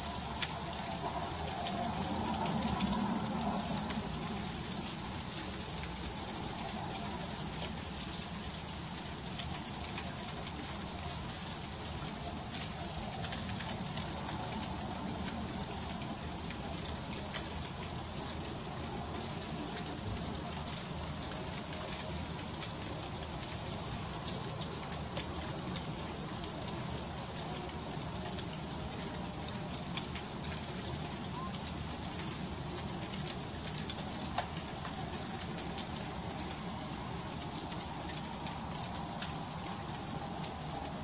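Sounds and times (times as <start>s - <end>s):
freezing rain hiss: 0.0s - 41.0s.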